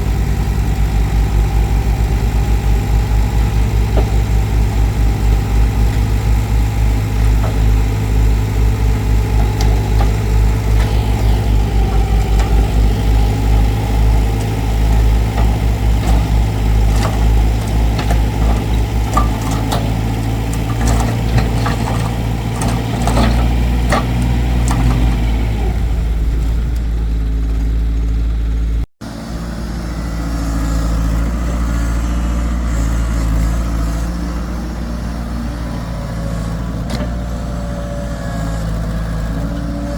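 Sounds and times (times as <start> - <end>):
excavator diesel engine running: 0.0 - 39.9
metal knocks and clanks: 3.2 - 25.2.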